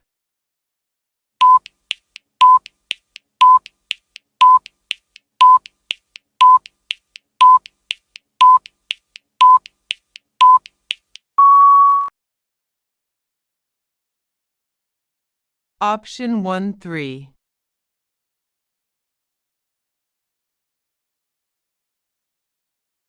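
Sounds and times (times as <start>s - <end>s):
short electronic beeps: 1.4s - 1.7s, 2.4s - 2.7s, 3.4s - 3.7s, 4.4s - 4.7s, 5.4s - 5.7s, 6.4s - 6.7s, 7.4s - 7.7s, 8.4s - 8.7s, 9.4s - 9.7s, 10.4s - 10.7s, 11.4s - 12.1s
long higher beep: 11.4s - 12.1s.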